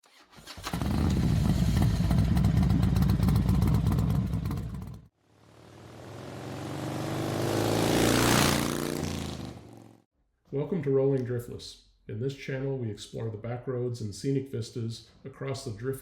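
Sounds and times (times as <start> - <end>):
motorcycle engine running: 0.8 - 10.0
engine rising in pitch: 5.3 - 10.0.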